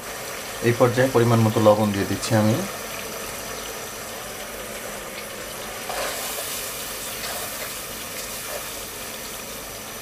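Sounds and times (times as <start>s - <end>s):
masala sizzling in oil: 0.0s - 10.0s
wooden spatula scraping a pot: 5.8s - 7.7s.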